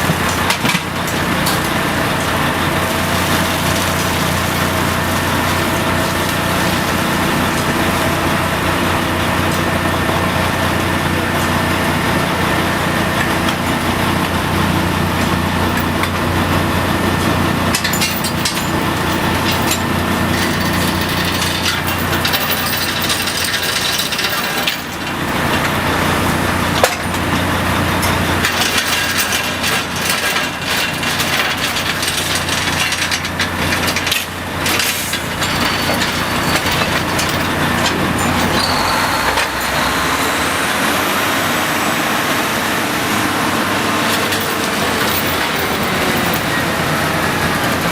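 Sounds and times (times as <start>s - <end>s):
drilling rig engine hum: 0.0s - 47.9s
metallic knocks and clatter: 17.7s - 25.8s, 28.0s - 38.7s.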